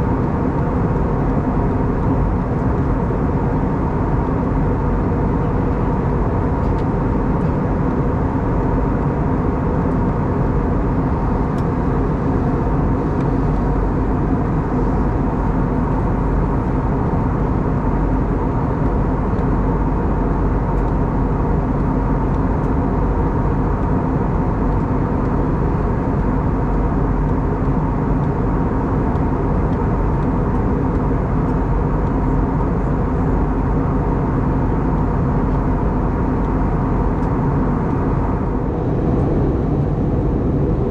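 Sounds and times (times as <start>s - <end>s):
airliner cabin engine drone: 0.0s - 40.9s
steady hum tones: 0.0s - 40.9s
airflow past fuselage: 37.7s - 40.9s.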